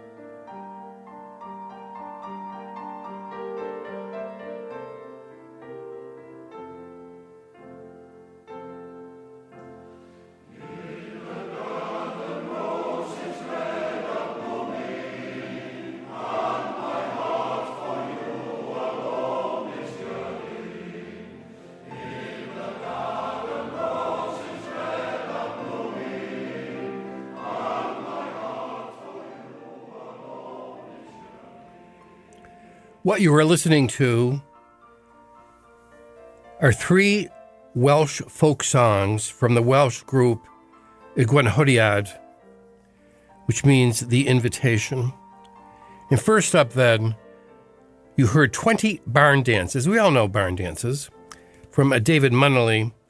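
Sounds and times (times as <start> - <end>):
choir singing: 10.4 - 33.9.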